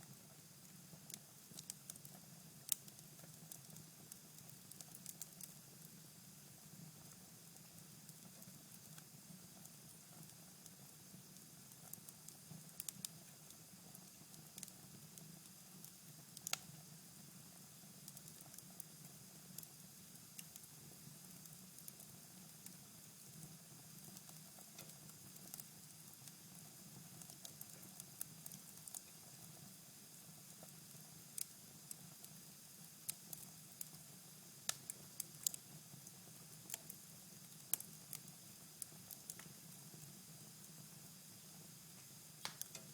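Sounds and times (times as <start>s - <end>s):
fire crackling: 2.7s - 5.6s, 16.4s - 16.7s, 31.4s - 32.0s, 34.7s - 35.6s, 36.6s - 40.0s, 42.0s - 42.9s
fire pops and snaps: 34.7s - 35.6s, 42.4s - 42.9s.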